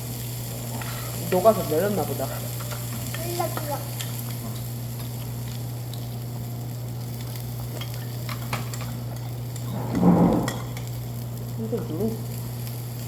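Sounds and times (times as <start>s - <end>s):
meat sizzling on a grill: 0.0s - 13.0s
low hum: 9.7s - 10.8s.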